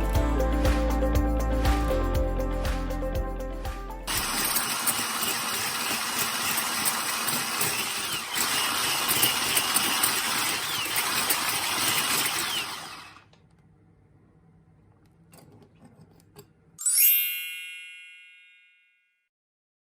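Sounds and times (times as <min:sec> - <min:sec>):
electric mixer whipping: 0:04.1 - 0:13.3.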